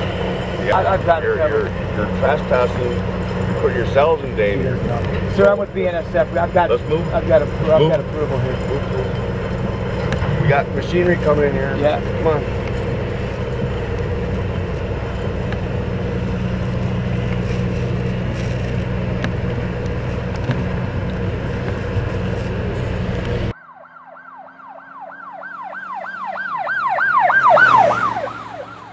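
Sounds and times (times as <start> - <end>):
low engine rumble: 0.0 - 23.6
emergency siren yelping: 23.4 - 28.9.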